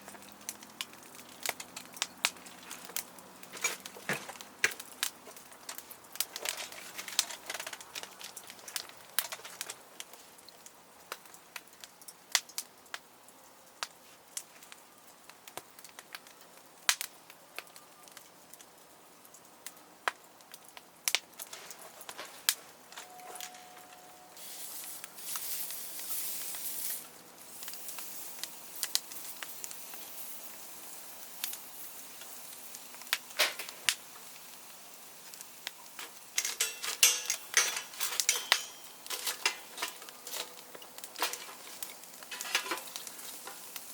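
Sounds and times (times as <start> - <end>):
campfire crackling and popping: 0.0 - 43.9
hiss: 24.4 - 36.1
clicks and clatter: 36.0 - 43.7.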